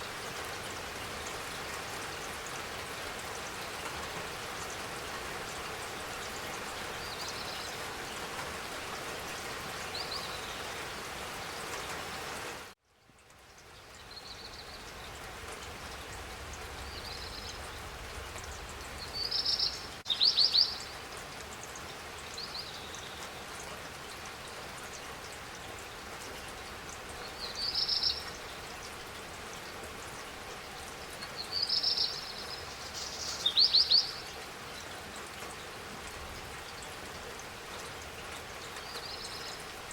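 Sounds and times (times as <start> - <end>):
steady rain falling: 0.0 - 39.9
small birds chirping: 16.0 - 21.0, 27.2 - 39.9.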